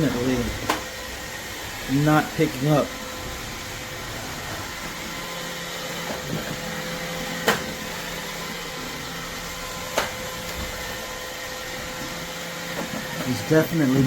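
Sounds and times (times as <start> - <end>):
robot vacuum humming and whining: 0.0 - 14.0.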